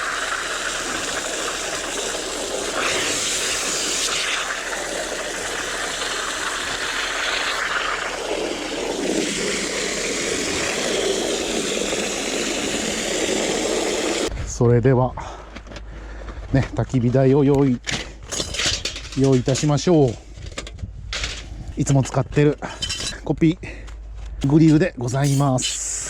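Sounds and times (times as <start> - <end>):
water running into hammock: 0.0 - 14.3.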